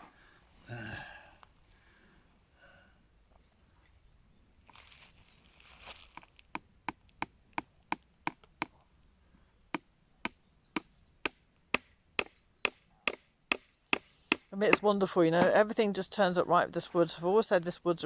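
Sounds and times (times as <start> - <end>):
hammer tapping a nail: 9.8 - 15.6.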